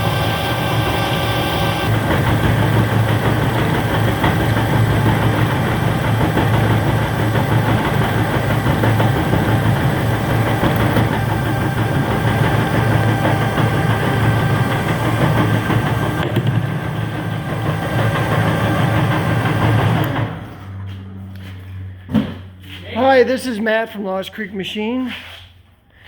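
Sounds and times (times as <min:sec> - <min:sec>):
metal-cutting bandsaw humming: 0:00.0 - 0:20.4.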